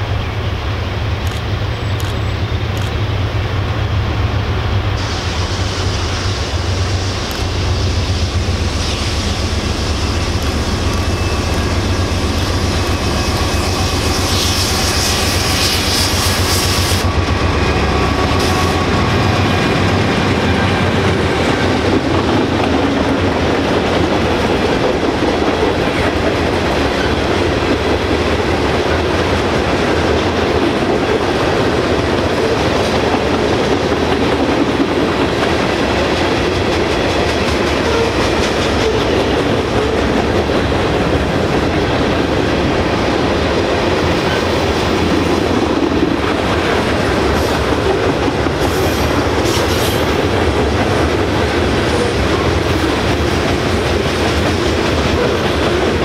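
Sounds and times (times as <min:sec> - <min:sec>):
train wheels rumbling on rails: 0:00.0 - 0:56.0
faint high squeals: 0:10.0 - 0:16.5.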